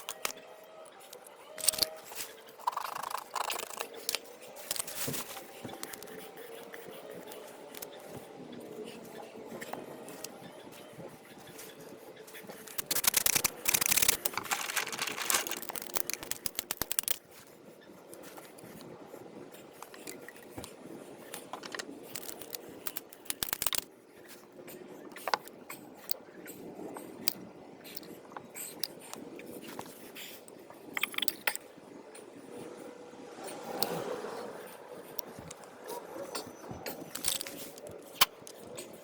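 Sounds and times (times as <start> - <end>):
quick ticks: 12.7 - 17.2
scraping and clicking on pipe: 12.7 - 17.2.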